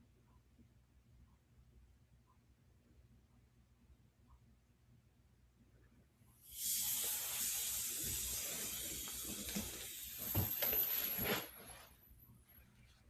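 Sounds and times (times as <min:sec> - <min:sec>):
air hissing from cuff valve: 0:06.4 - 0:11.2.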